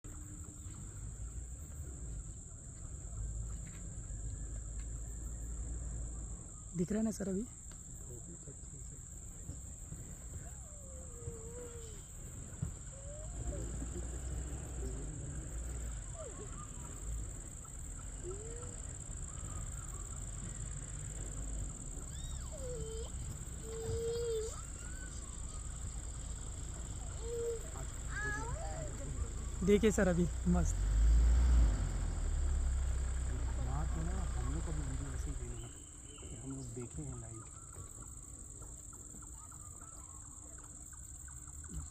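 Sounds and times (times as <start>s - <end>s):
insects chirping: 0.0s - 41.9s
hushed voices: 26.6s - 29.6s.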